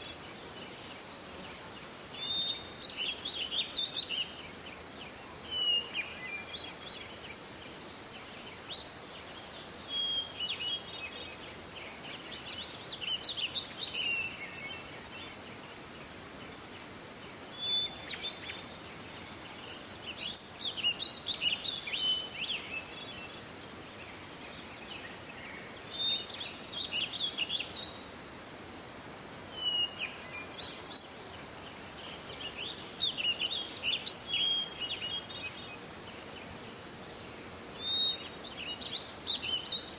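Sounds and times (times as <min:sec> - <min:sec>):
background hiss: 0:00.0 - 0:39.9
songbird warbling: 0:29.1 - 0:35.7.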